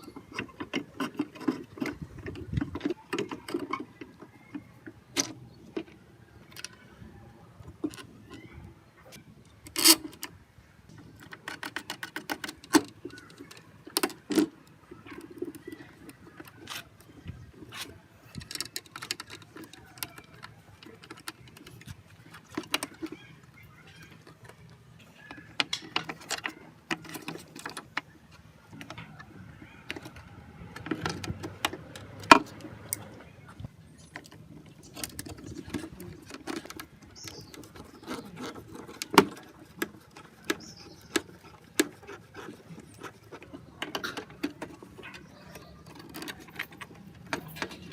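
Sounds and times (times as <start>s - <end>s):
metal tools clicking and rattling: 9.6s - 10.3s, 11.1s - 33.2s, 33.9s - 47.9s.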